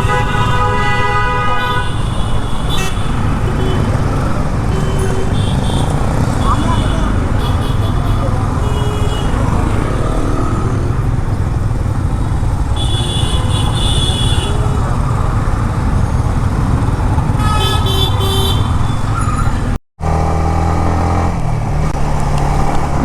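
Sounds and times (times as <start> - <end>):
vehicle horns: 0.0 - 10.7, 12.0 - 15.2, 17.2 - 19.7
motorcycle engine rumble: 0.0 - 20.5.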